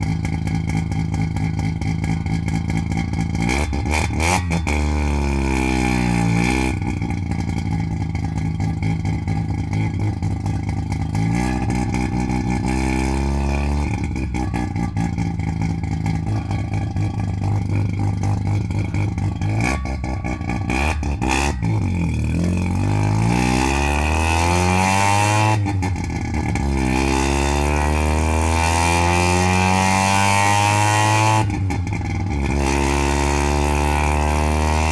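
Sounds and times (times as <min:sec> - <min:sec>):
exhaust cracks: 0:05.8 - 0:24.5
rotary engine revving: 0:11.2 - 0:25.7, 0:26.3 - 0:31.6, 0:32.4 - 0:34.9.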